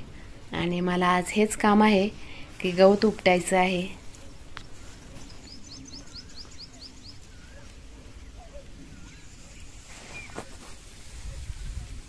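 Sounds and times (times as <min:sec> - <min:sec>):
small birds chirping: 0:00.0 - 0:11.9
short whistled bird notes: 0:10.0 - 0:10.5.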